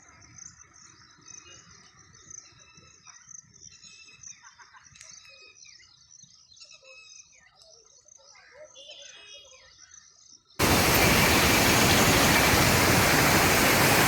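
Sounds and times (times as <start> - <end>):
bird calls: 10.6 - 14.0
insects chirring: 10.6 - 14.0
stream water rushing: 10.6 - 14.0.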